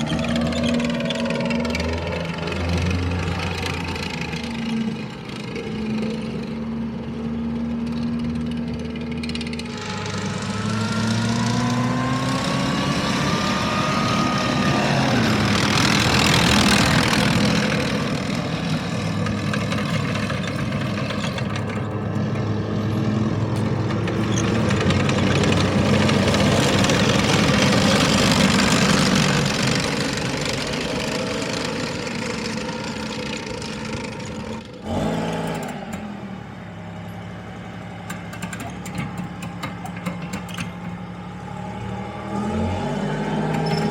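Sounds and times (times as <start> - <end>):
tracked vehicle engine revving: 0.0 - 43.9.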